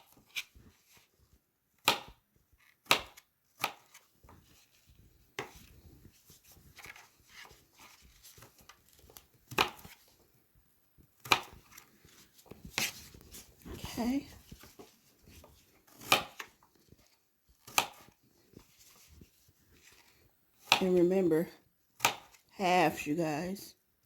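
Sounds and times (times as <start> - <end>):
faint handling sounds: 0.0 - 20.7
knife chopping on cutting board: 1.8 - 2.2, 2.8 - 4.0, 11.2 - 11.8, 15.9 - 16.5, 17.6 - 18.2, 20.6 - 21.0, 22.0 - 22.4.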